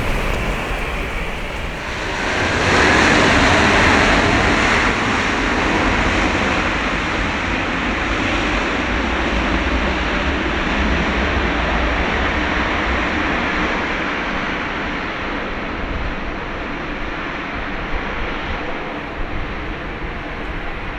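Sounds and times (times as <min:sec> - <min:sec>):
airliner jet noise landing: 0:00.0 - 0:05.4.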